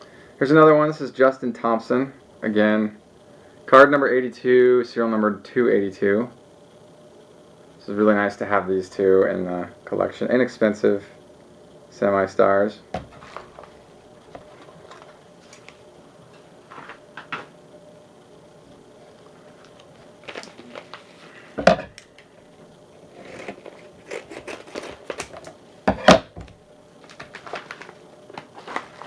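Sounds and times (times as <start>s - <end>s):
cards clicking and rustling: 19.7s - 21.2s, 27.0s - 29.0s.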